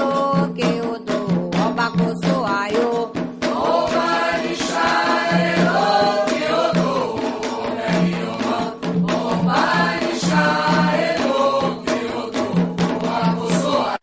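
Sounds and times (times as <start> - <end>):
drum strokes: 0.0 - 14.0
choir singing call-and-response chant: 3.4 - 14.0.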